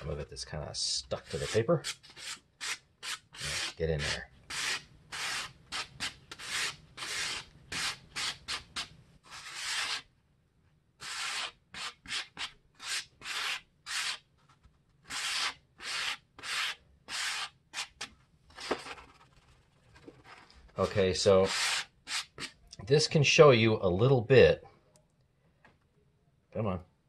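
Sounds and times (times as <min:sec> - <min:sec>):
scraping and rubbing paper: 0:01.1 - 0:10.1, 0:11.0 - 0:22.6.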